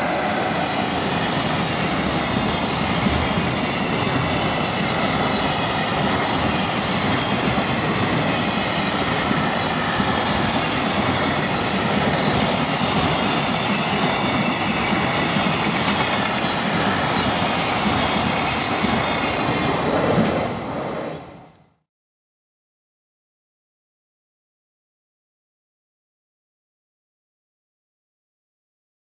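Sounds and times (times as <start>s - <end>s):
electric train passing: 0.0s - 21.6s.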